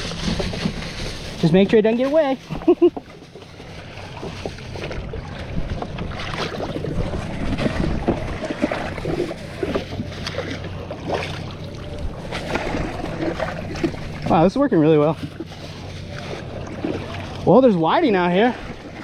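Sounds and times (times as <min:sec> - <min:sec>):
rustling: 0:00.0 - 0:17.5
wind on microphone: 0:03.8 - 0:17.4.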